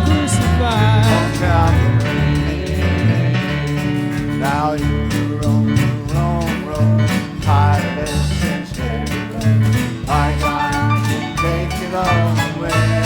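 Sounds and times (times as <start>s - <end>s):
stepping bass line: 0.0s - 13.0s
strummed acoustic guitar: 0.0s - 13.0s
sliding lead melody: 10.2s - 13.0s.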